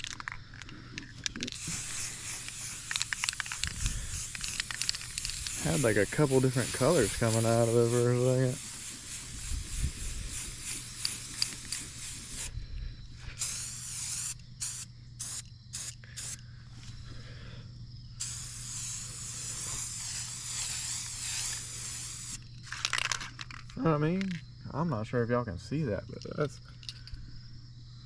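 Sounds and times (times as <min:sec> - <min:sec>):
spray paint can hissing: 0:01.5 - 0:12.5, 0:13.4 - 0:16.4, 0:18.2 - 0:22.4.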